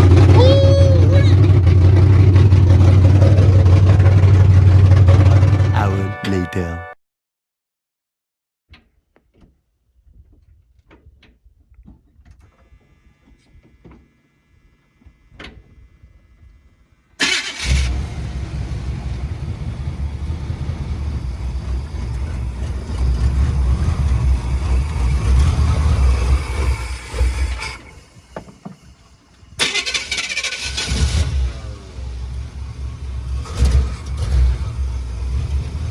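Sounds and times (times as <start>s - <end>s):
race truck engine running rough: 0.0s - 6.1s, 17.2s - 35.9s.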